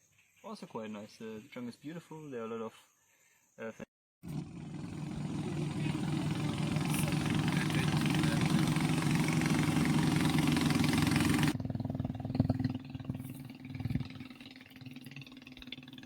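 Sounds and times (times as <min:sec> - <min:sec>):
boat engine running: 0:04.2 - 0:16.0.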